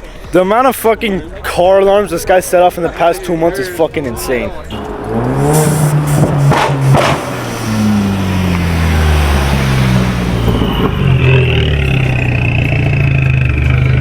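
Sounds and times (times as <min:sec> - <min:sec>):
loud car exhaust revving: 0:04.7 - 0:14.0
sharp exhaust cracks: 0:04.7 - 0:14.0.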